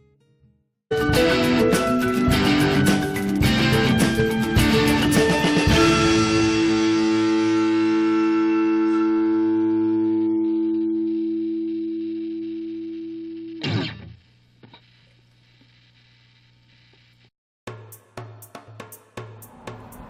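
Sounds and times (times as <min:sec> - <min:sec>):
guitar chord ringing: 0:00.9 - 0:13.2.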